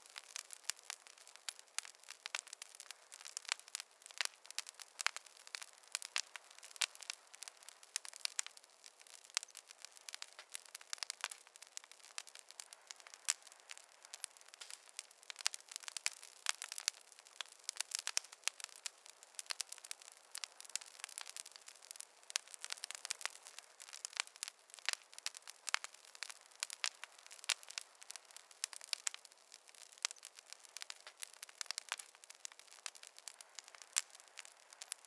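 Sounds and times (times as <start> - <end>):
campfire crackling: 0.0 - 35.0.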